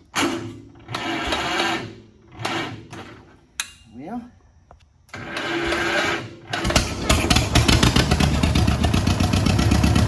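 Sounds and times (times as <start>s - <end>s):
tractor engine cranking and starting: 0.0s - 3.8s, 5.0s - 10.0s.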